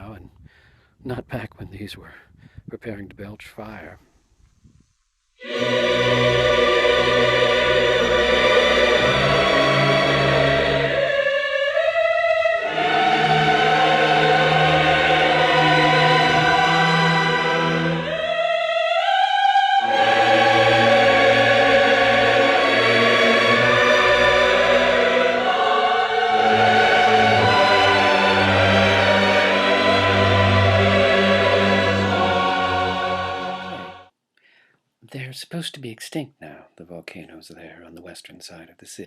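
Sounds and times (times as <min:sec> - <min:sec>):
choir singing held chords: 0:05.4 - 0:34.1
orchestral backing: 0:05.4 - 0:34.1.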